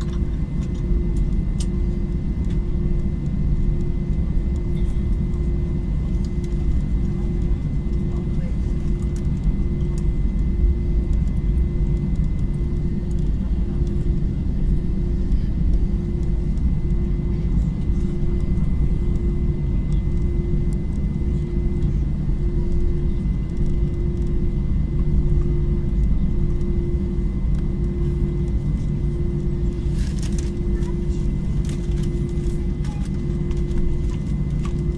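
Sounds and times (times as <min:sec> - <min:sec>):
jet engines running: 0:00.0 - 0:34.9
pulsing hum: 0:00.0 - 0:34.9.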